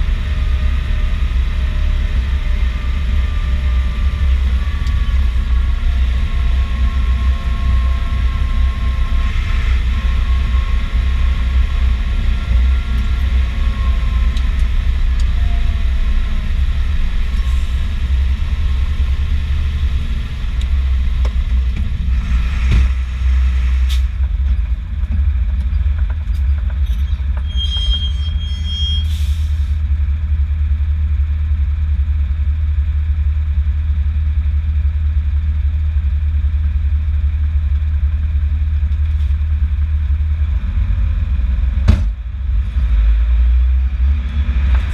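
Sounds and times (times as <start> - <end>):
tractor engine droning: 0.0 - 44.9
faint wavering whine: 2.6 - 17.7.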